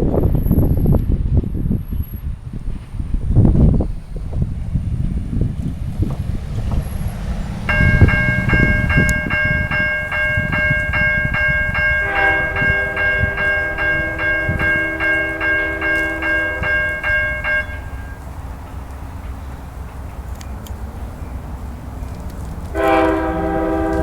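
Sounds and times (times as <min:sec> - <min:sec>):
low train rumble: 0:00.0 - 0:24.0
railroad crossing bell ringing: 0:06.9 - 0:24.0
train horn chord: 0:07.7 - 0:18.3, 0:22.7 - 0:24.0.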